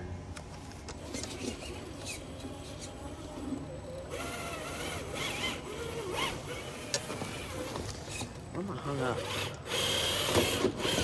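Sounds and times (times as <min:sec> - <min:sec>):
toy car electric motor whining: 0:04.0 - 0:11.0.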